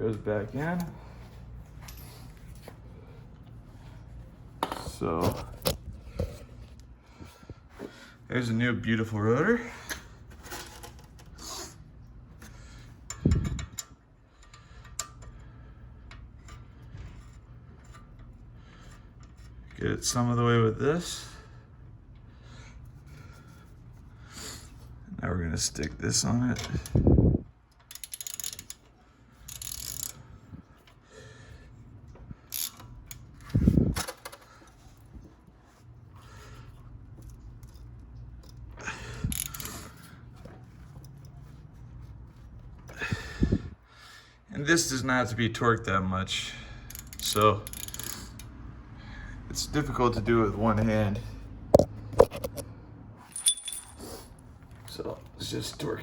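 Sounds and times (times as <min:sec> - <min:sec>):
metallic clicks of tools: 0:13.0 - 0:16.6, 0:27.7 - 0:30.2, 0:32.5 - 0:34.4, 0:37.2 - 0:40.1, 0:46.9 - 0:48.6
hand tools metallic rattle: 0:53.3 - 0:54.1.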